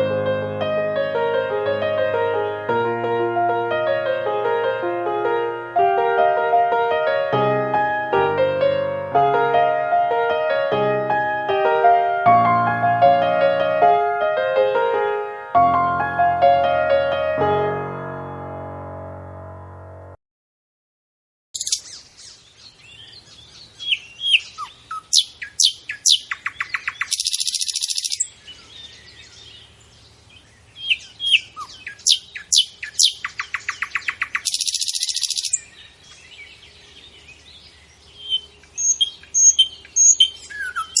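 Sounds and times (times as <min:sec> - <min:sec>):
small birds chirping: 0:21.6 - 0:41.0.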